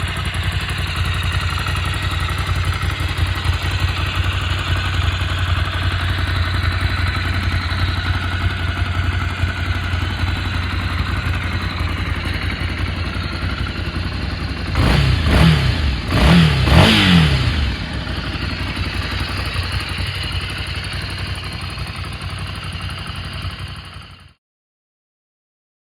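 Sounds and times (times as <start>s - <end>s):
motorcycle engine idling: 0.0s - 24.4s
engine revving: 12.7s - 19.0s.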